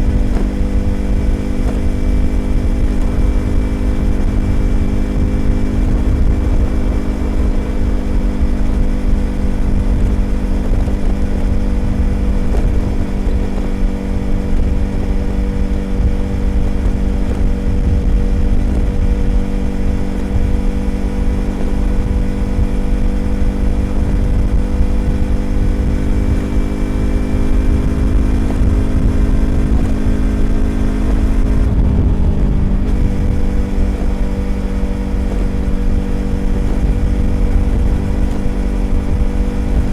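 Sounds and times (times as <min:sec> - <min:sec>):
low wind rumble: 0:00.0 - 0:39.9
motorcycle engine cruising: 0:00.0 - 0:39.9.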